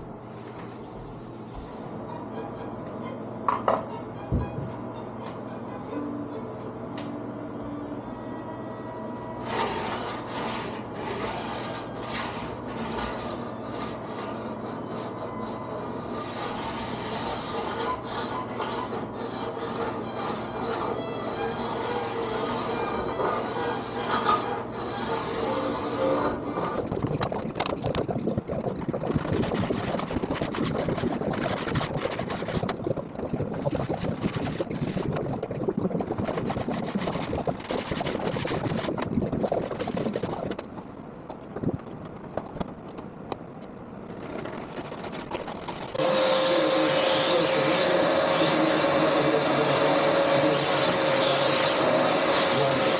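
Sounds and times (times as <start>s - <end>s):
scraping and rasping strokes: 9.3s - 27.2s, 29.2s - 32.9s, 33.6s - 35.3s, 36.2s - 40.6s, 44.1s - 52.9s
small electric motor humming: 46.0s - 52.9s.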